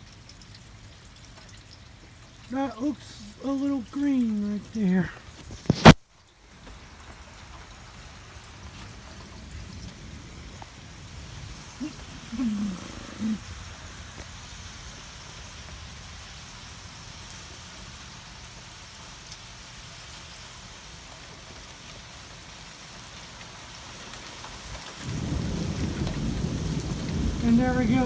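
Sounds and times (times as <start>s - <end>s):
steady rain hiss: 0.0s - 28.0s
low rumble of thunder: 7.9s - 17.2s, 25.0s - 28.0s.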